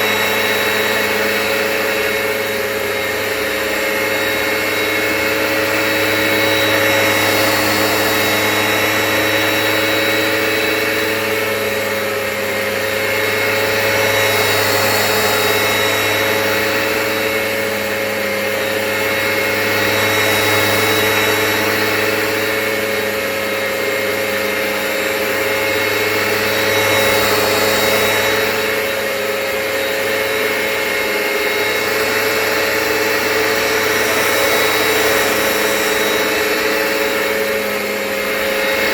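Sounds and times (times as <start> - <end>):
carpet washer motor whine: 0.0 - 38.9.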